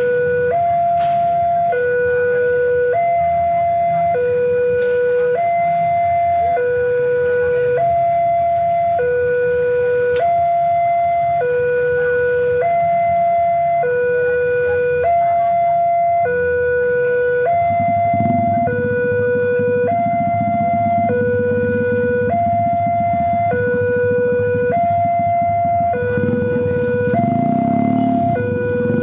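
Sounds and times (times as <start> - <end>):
level crossing two-tone alarm: 0.0 - 29.0
low engine rumble: 0.0 - 29.0.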